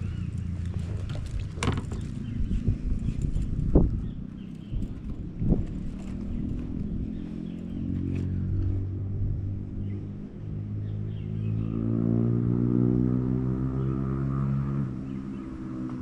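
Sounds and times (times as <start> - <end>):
motor engine running: 0.0 - 11.7.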